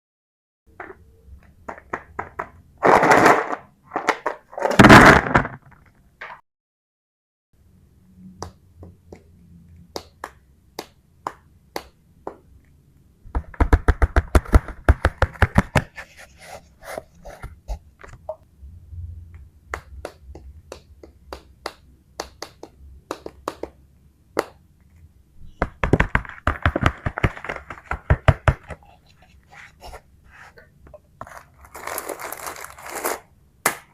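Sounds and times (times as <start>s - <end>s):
toy figures tapping and clicking: 19.7s - 23.8s.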